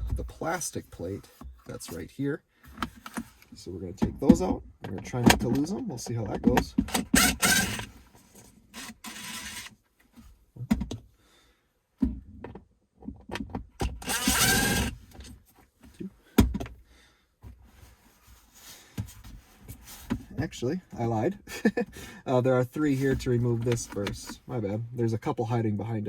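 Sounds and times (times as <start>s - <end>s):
cordless drill running: 6.9s - 7.9s, 8.8s - 9.7s, 13.9s - 15.0s.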